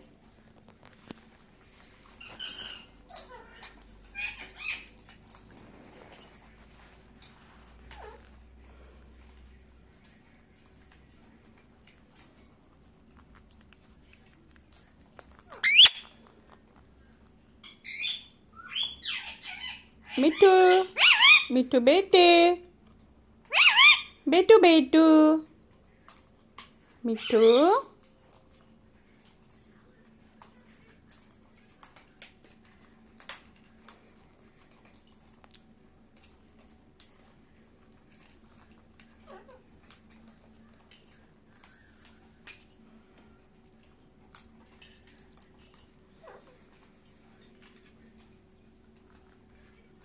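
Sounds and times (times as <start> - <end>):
parakeet chirping call: 15.5 - 16.2, 17.6 - 21.5, 23.5 - 24.2
parakeet rising whistle: 15.6 - 16.0.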